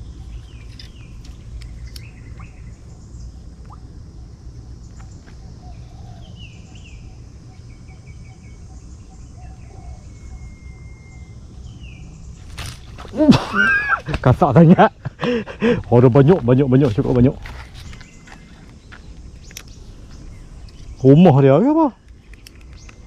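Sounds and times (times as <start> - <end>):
birds chirping: 0.0 - 23.0
long even bird whistle: 7.8 - 12.0.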